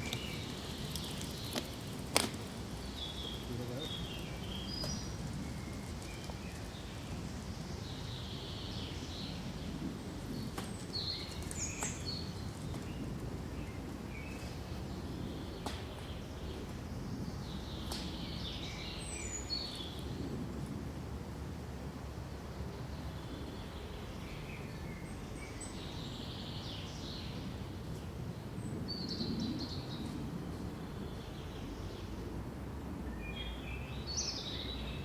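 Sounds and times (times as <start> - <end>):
small birds chirping: 0.0 - 20.4, 33.0 - 35.0
wind through pines: 0.0 - 35.0.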